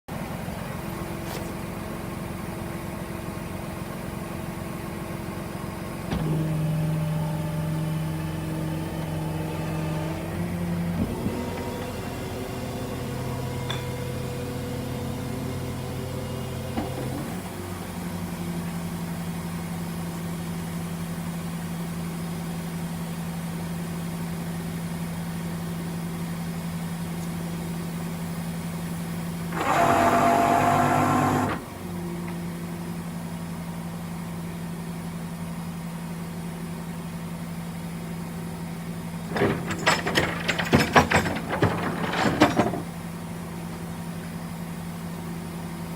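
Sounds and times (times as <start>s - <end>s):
sharp clanks and rattles: 39.3s - 43.0s.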